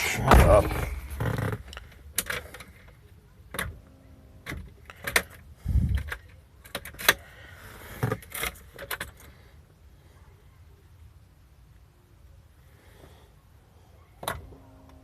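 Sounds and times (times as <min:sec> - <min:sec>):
dull low thump: 0:00.0 - 0:01.6.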